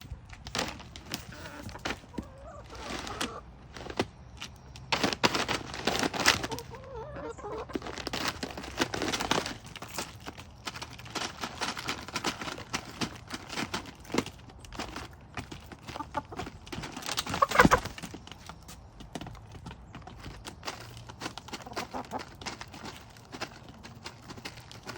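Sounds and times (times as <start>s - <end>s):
chickens clucking softly: 1.2s - 3.5s, 6.3s - 8.0s, 15.7s - 18.0s.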